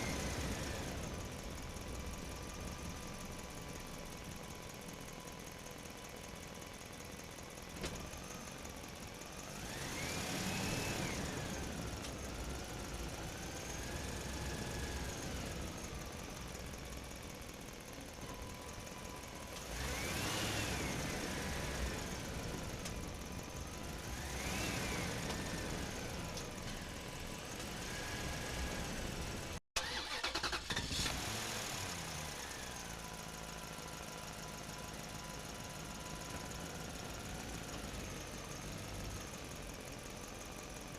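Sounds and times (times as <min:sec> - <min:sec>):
vehicle engine revving: 0:09.4 - 0:15.8, 0:19.6 - 0:26.4, 0:27.0 - 0:32.9.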